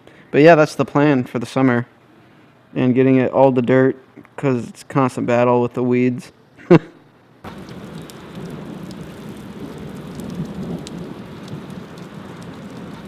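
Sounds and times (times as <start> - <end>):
rain falling: 7.2 - 13.0
low rumble of thunder: 7.5 - 13.0.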